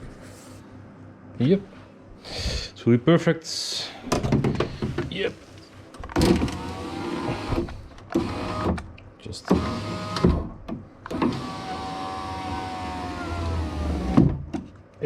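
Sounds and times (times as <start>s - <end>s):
window motor stopping clunk: 6.0s - 8.9s, 9.5s - 14.5s
power-window motor whining: 6.1s - 8.8s, 9.5s - 14.4s.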